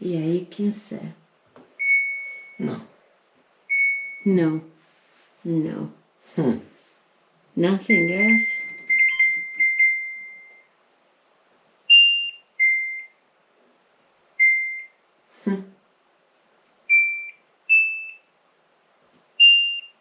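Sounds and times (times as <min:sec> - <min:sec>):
washing machine control panel beeps: 0:01.8 - 0:02.6, 0:03.7 - 0:04.3, 0:07.9 - 0:10.7, 0:11.9 - 0:13.2, 0:14.4 - 0:15.0, 0:16.9 - 0:18.3, 0:19.4 - 0:20.0.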